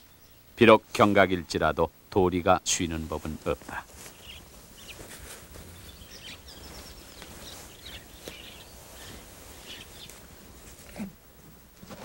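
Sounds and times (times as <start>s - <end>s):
faint bird chirps: 0.0s - 0.6s, 3.7s - 10.6s
low steady background noise: 0.0s - 12.0s.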